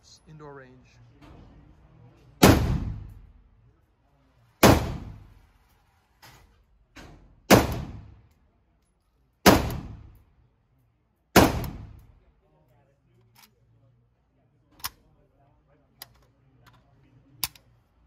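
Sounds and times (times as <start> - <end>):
rifle shots echoing indoors: 2.4 - 3.4, 4.6 - 5.5, 7.2 - 8.4, 9.3 - 10.4, 11.2 - 12.3.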